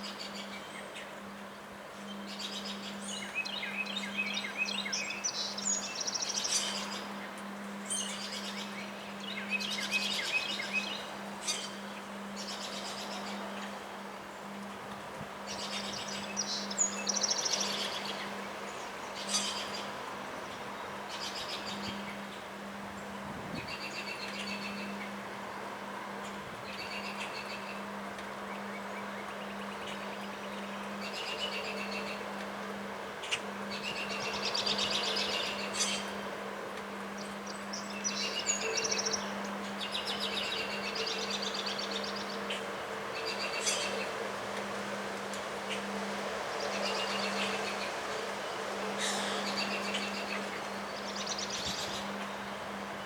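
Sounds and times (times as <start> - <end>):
songbird singing trills: 2.0 - 7.1, 15.5 - 20.0, 37.1 - 42.6, 46.5 - 52.6
wind noise: 23.2 - 23.8.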